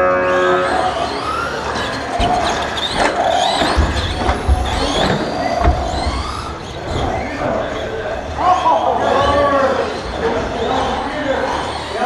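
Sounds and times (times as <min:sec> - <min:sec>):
rc truck motors whining: 0:00.0 - 0:12.0
low thuds: 0:02.2 - 0:07.2.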